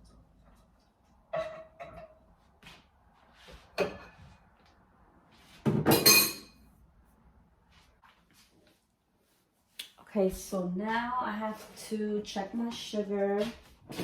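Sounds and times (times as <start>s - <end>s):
dishes and utensils clinking: 1.3s - 2.2s, 3.8s - 4.2s, 5.7s - 6.6s
dishes clattering: 1.3s - 2.2s, 3.8s - 4.2s, 5.7s - 6.6s.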